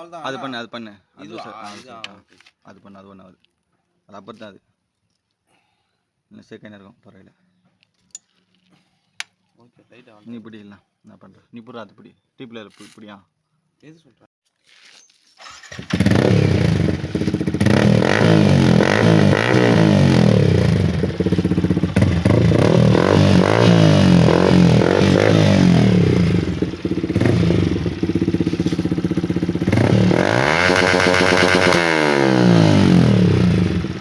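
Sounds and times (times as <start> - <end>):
motorcycle engine revving: 15.4 - 34.0.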